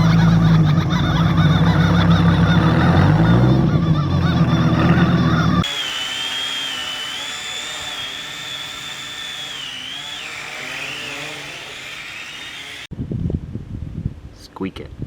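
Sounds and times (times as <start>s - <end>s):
car engine running: 1.0s - 5.6s
car tyres squealing: 1.1s - 5.6s.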